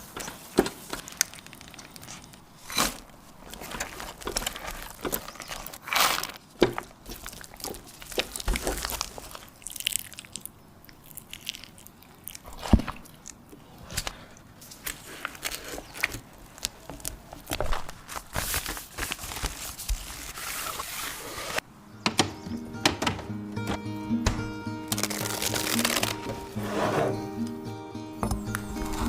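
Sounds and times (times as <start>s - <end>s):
kitchen taps and knocks: 22.0s - 24.5s.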